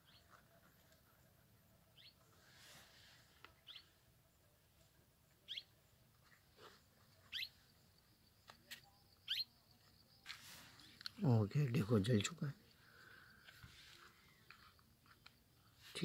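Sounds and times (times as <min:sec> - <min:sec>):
bird chirping: 0:00.0 - 0:00.3, 0:01.9 - 0:02.4, 0:03.5 - 0:04.0, 0:05.4 - 0:06.0, 0:07.2 - 0:11.2.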